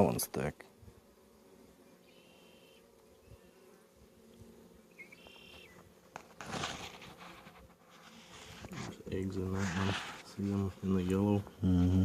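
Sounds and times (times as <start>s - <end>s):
honeybees buzzing: 0.0s - 12.0s
handling rustle: 5.2s - 11.4s.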